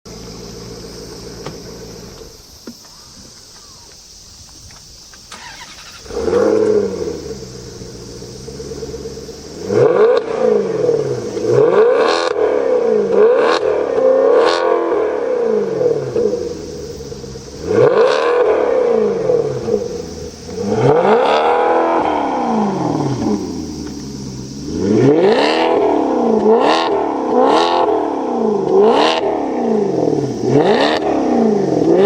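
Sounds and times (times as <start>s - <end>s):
car engine idling and revving: 0.1s - 32.0s
quick throttle blips: 5.3s - 8.0s.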